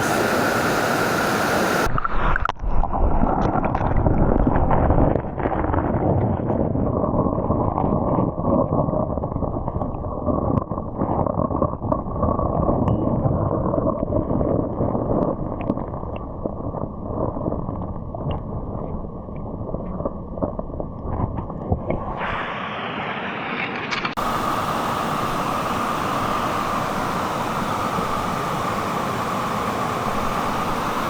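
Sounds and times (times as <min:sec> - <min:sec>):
stream rushing over rocks: 0:00.0 - 0:01.9, 0:24.1 - 0:31.0.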